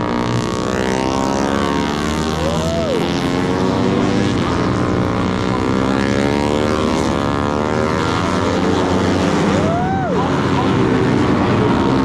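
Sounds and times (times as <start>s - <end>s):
racing motorcycles passing: 0.0s - 12.0s.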